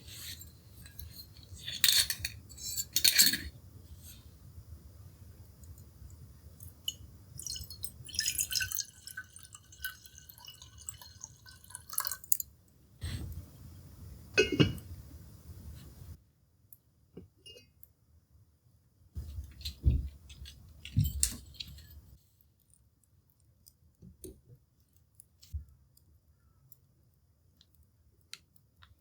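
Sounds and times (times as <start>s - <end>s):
liquid pouring into a glass: 6.8s - 12.5s.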